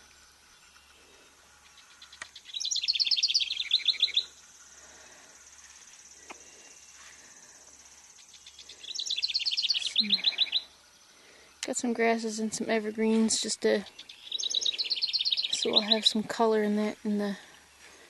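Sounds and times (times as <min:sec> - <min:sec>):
songbird trilling: 0:01.6 - 0:04.8, 0:08.2 - 0:11.6, 0:13.8 - 0:16.3.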